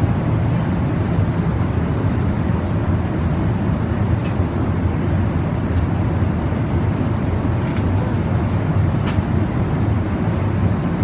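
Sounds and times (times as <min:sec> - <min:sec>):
airliner cabin noise: 0:07.6 - 0:11.0.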